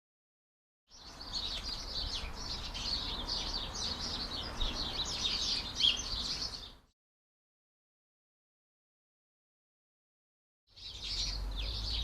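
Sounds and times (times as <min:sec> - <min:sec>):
small songbirds chirping: 0:00.9 - 0:06.9, 0:10.7 - 0:12.0.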